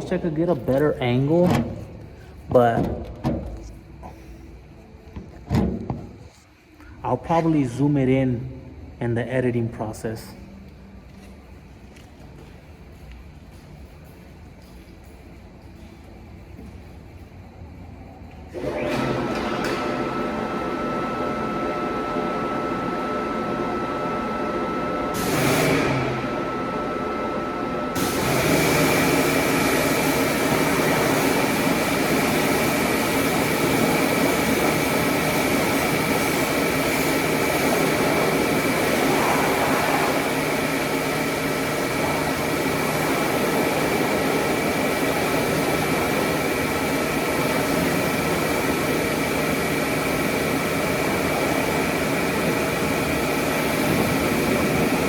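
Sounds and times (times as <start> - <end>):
machinery hum with thin whine: 0.0 - 55.0
loud rushing with high whine: 20.7 - 55.0.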